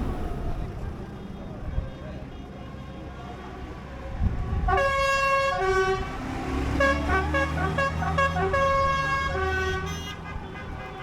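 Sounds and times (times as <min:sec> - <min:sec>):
engine rumbling: 0:00.0 - 0:02.5
truck musical horn playing tune: 0:04.7 - 0:11.0.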